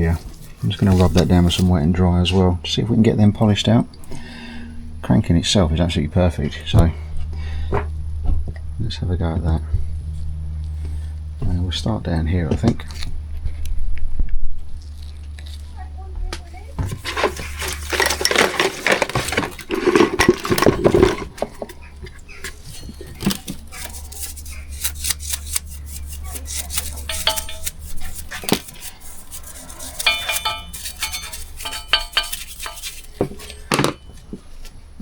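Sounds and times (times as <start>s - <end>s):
metal tools clinking on workbench: 16.8s - 21.6s, 22.5s - 34.3s
short metallic rings: 22.6s - 34.3s.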